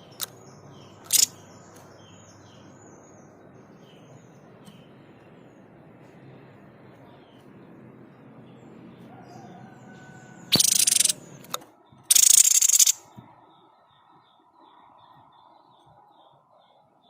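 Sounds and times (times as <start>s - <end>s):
harsh rasping bird call: 10.1s - 11.3s, 12.1s - 13.0s.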